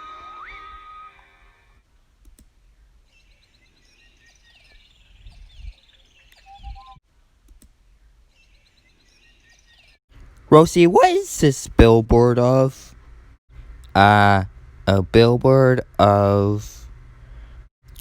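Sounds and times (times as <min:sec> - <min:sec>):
faint birds chirping: 0:02.6 - 0:07.0.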